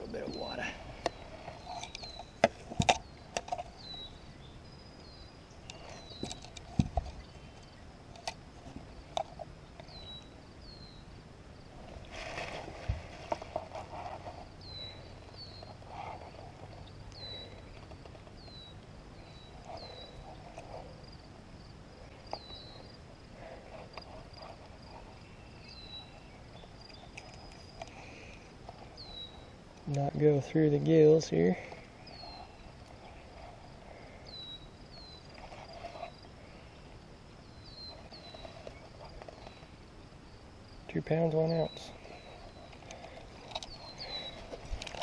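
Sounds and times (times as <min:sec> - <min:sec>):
small bird chirping: 0:00.0 - 0:07.9, 0:08.9 - 0:11.1, 0:13.3 - 0:39.8, 0:40.7 - 0:45.0.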